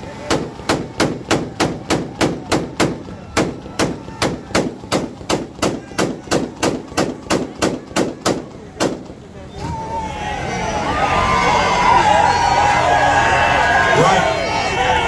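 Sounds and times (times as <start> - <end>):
car exhaust bangs: 0.0 - 9.5.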